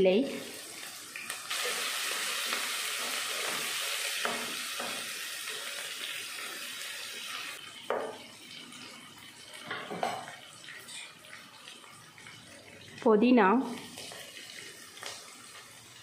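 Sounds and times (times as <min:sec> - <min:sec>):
vegetables sizzling in hot oil: 0:00.0 - 0:16.0
spatula knocking the pan: 0:04.2 - 0:05.1.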